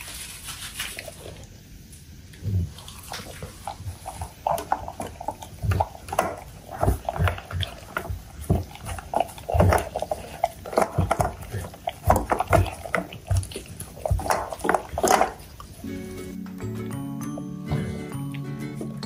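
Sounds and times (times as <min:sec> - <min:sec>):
dog licking and chewing: 0:00.0 - 0:01.6, 0:02.3 - 0:15.9.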